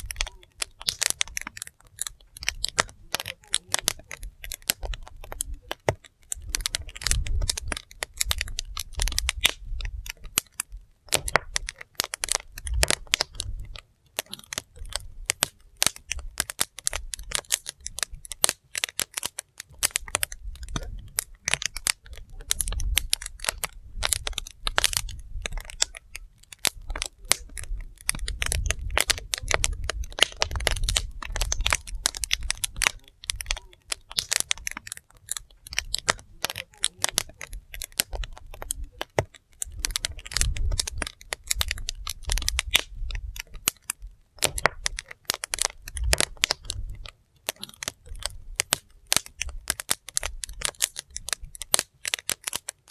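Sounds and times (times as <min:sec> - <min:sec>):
firewood crackling and popping: 0:00.0 - 0:52.9.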